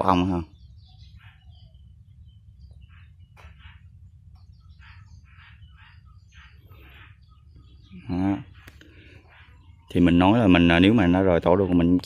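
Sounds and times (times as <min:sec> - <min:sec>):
small birds chirping: 0:00.0 - 0:12.0
steady low rumble: 0:00.4 - 0:08.0.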